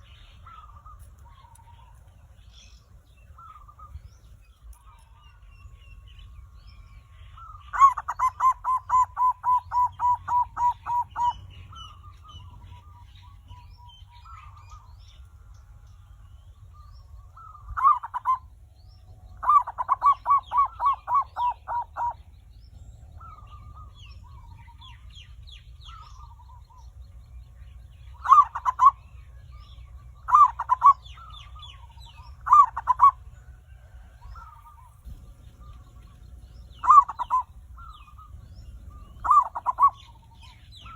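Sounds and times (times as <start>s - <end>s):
low steady hum: 0.0s - 40.9s
small birds chirping: 0.0s - 40.9s
dove cooing: 7.3s - 14.9s, 17.2s - 18.6s, 19.3s - 26.9s, 28.0s - 40.9s.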